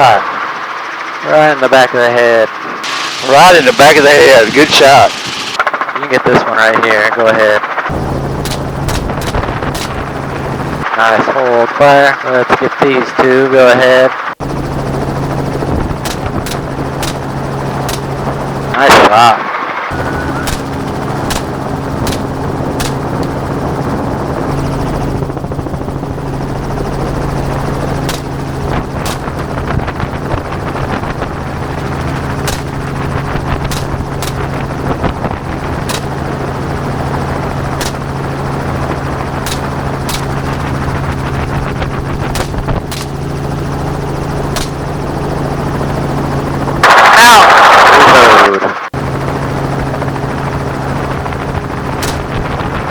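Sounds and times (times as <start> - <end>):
helicopter engine and rotor drone: 0.0 - 52.9
sharp cracks: 7.8 - 10.8, 16.0 - 18.7, 19.9 - 23.6, 27.0 - 45.6, 51.9 - 52.9.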